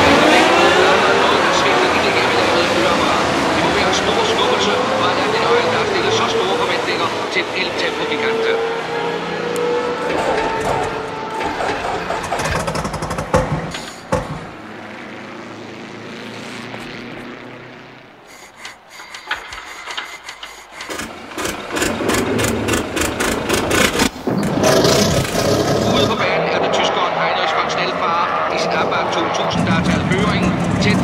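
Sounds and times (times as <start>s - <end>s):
loud engine noise: 0.0s - 31.0s
race car engine sputtering: 0.0s - 31.0s
hand crank clicking: 18.3s - 24.1s.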